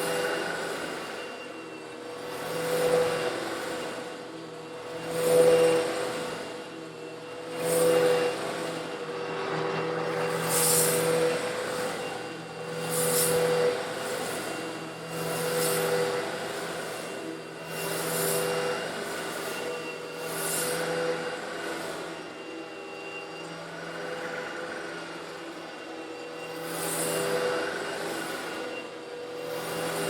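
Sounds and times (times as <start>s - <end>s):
vacuum cleaner motor hum: 0.0s - 30.0s
vacuum sucking up stones: 10.2s - 18.8s.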